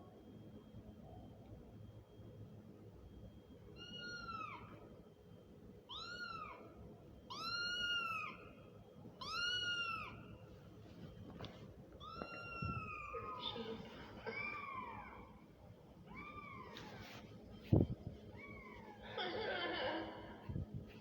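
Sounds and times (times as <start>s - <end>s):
kitten meowing: 9.2s - 10.2s, 12.0s - 13.7s.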